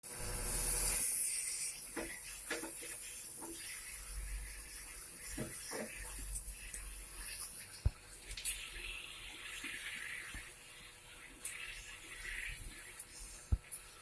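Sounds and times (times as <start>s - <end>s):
steady hiss: 0.4s - 14.0s.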